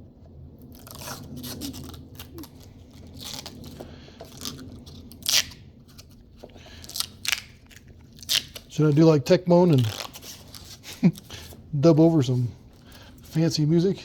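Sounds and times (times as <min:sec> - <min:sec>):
scraping and crunching: 0:00.6 - 0:11.7.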